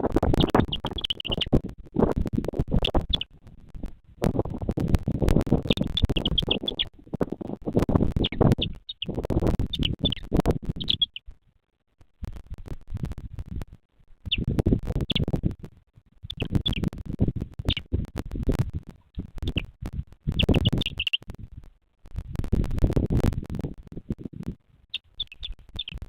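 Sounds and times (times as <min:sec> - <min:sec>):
high bird chirps: 0:00.3 - 0:01.6, 0:02.7 - 0:03.3, 0:05.6 - 0:06.9, 0:08.2 - 0:11.2, 0:14.3 - 0:15.3, 0:16.3 - 0:16.9, 0:19.4 - 0:19.7, 0:20.4 - 0:21.2, 0:24.9 - 0:26.0.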